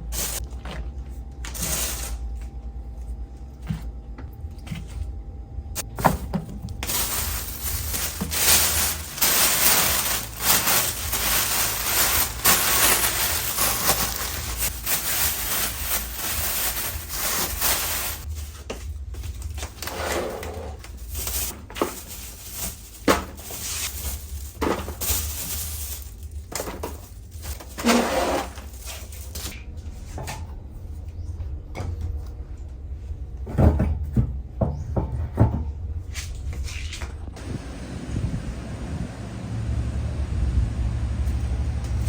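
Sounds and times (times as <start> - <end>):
steady low hum: 0.0 - 27.6
rustling: 5.8 - 29.6.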